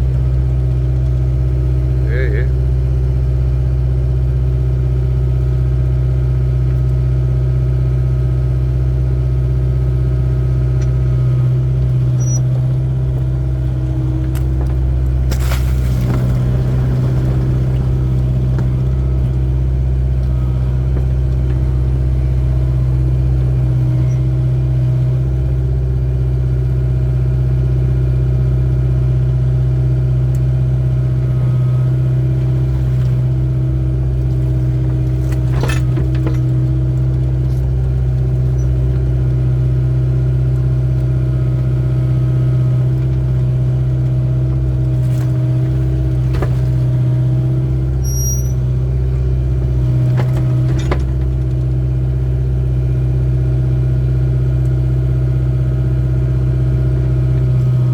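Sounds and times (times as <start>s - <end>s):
excavator diesel engine running: 0.0s - 57.9s.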